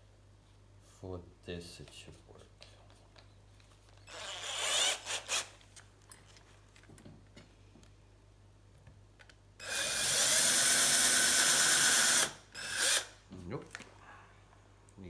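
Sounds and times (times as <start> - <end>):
electric drill running: 4.1 - 5.5, 9.6 - 13.2.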